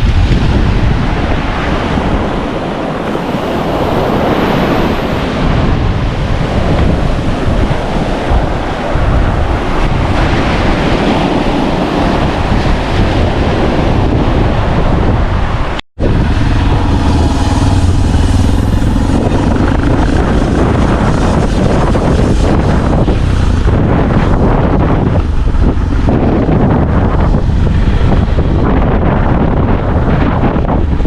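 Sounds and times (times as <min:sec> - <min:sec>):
waves washing on rocky shore: 0:00.0 - 0:14.8
wind buffeting microphone: 0:00.0 - 0:31.0.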